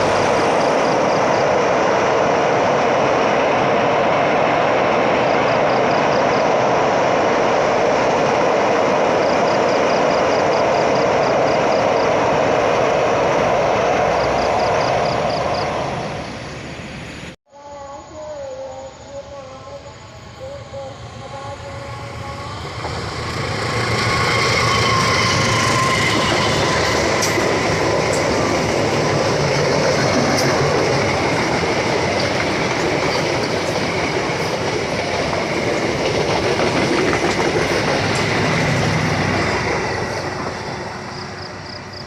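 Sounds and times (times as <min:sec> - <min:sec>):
train wheels clattering: 0:22.7 - 0:42.0
wheel squeal: 0:23.6 - 0:28.4.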